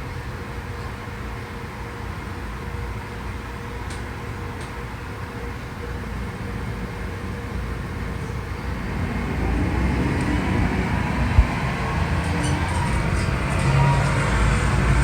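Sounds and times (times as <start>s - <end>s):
truck diesel engine rumbling: 6.9s - 15.0s.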